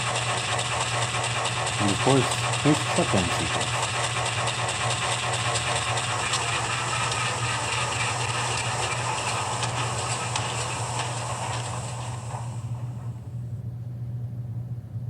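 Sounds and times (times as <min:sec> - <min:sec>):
diesel locomotive engine through small speaker: 0:00.0 - 0:15.0.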